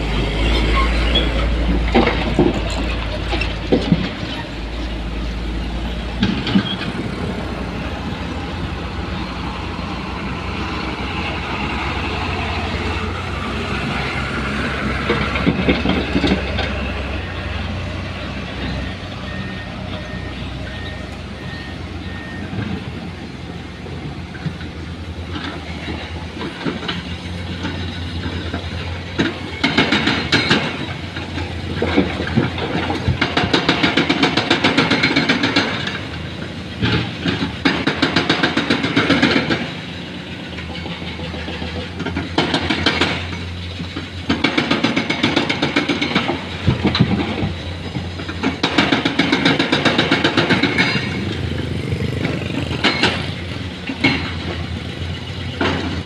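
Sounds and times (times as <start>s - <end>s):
diesel engine running: 0.0s - 56.0s
hydraulic breaker hammering rock: 29.2s - 30.9s, 31.7s - 36.0s, 36.8s - 39.8s, 44.2s - 56.0s.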